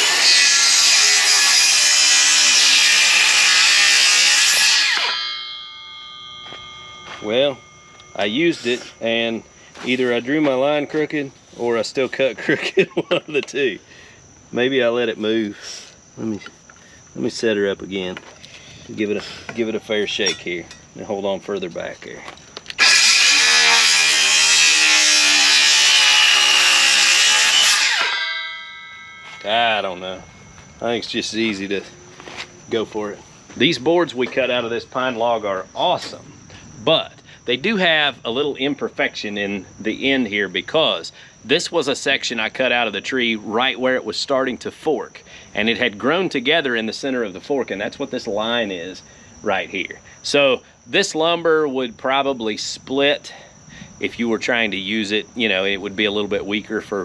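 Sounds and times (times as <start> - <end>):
saw motor winding down: 0.0 - 5.2, 22.8 - 28.4
circular saw cutting wood: 0.0 - 5.6, 22.7 - 28.6
faint steady hum: 5.1 - 27.7, 28.3 - 57.0.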